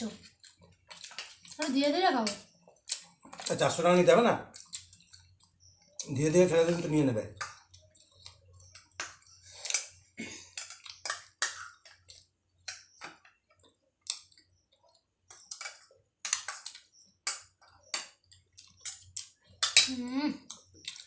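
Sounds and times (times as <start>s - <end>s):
wet chewing and lip smacks: 0.2s - 1.6s, 2.3s - 3.5s, 4.5s - 6.1s, 7.4s - 10.0s, 10.6s - 19.8s, 20.4s - 21.0s.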